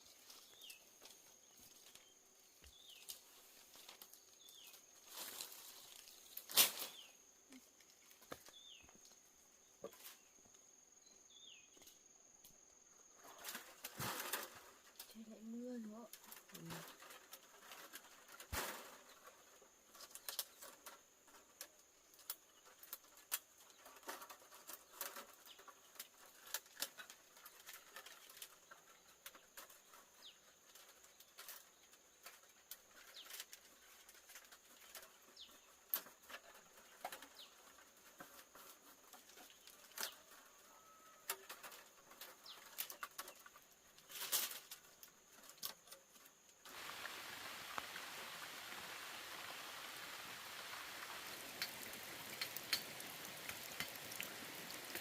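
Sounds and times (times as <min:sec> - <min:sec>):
steady high hiss: 0:46.2 - 0:55.0
rain hiss: 0:46.6 - 0:55.0.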